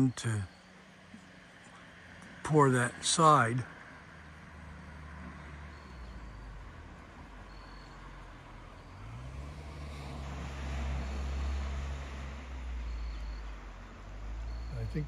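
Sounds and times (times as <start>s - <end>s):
car engine humming: 0.0s - 15.0s.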